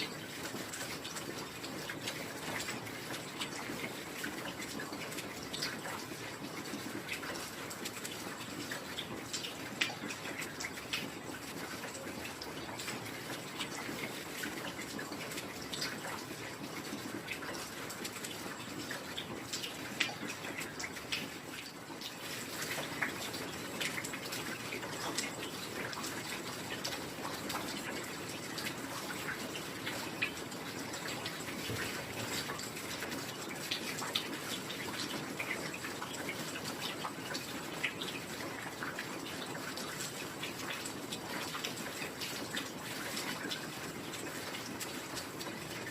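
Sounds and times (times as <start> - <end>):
heavy rain: 0.0 - 45.9
raindrops ticking: 0.0 - 45.9.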